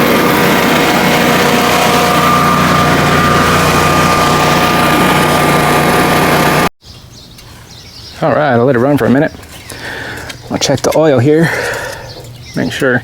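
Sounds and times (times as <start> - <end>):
generator engine running: 0.0 - 6.7.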